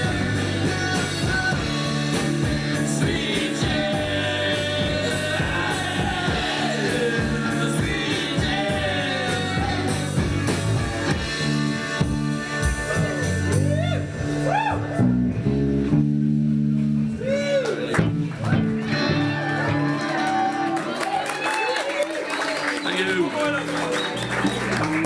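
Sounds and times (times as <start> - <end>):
person singing lead vocal: 0.0 - 11.2, 11.9 - 15.1
rock band playing: 0.0 - 21.2, 22.4 - 25.0.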